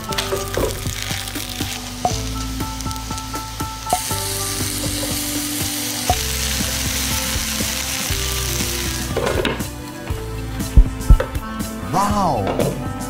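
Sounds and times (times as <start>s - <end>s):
potato slices sizzling in oil: 0.0s - 9.9s.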